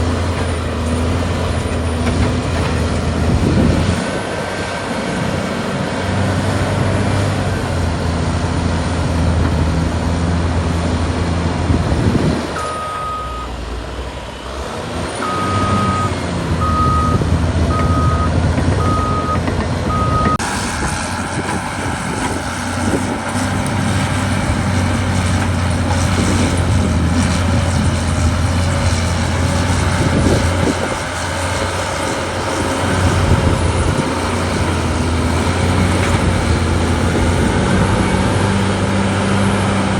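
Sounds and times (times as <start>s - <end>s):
bulldozer diesel engine running: 0.0s - 39.9s
reverse alarm beeps: 12.6s - 13.5s, 15.2s - 20.4s.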